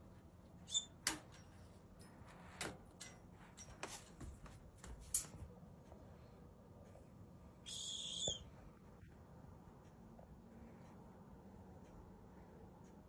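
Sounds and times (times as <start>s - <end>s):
budgie chirp: 7.6s - 8.5s.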